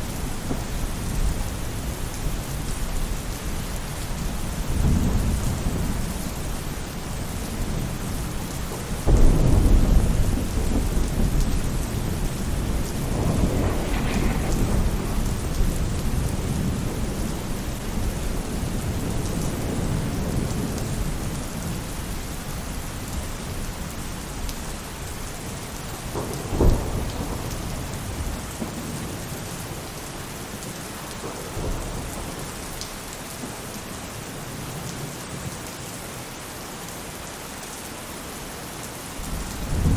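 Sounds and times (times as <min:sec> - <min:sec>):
thunder rumbling: 0:00.0 - 0:34.0, 0:39.2 - 0:39.9
rain falling on a roof: 0:00.0 - 0:39.9.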